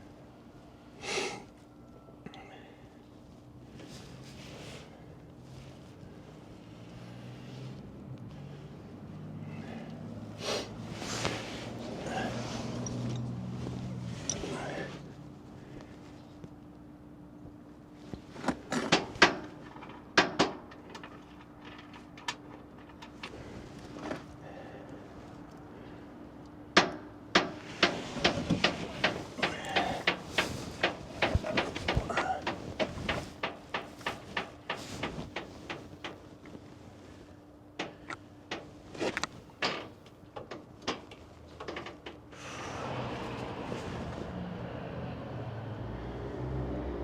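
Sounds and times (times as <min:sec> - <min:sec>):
faint steady hum: 0:00.0 - 0:44.4
sharp knocks and clanks: 0:18.4 - 0:23.2, 0:26.7 - 0:36.2.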